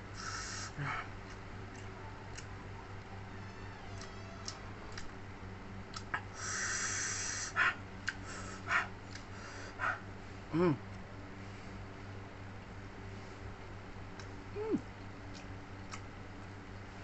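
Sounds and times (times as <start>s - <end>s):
sharp intake of breath: 0.1s - 1.0s, 6.4s - 7.6s
man humming: 10.5s - 10.9s, 14.5s - 14.9s.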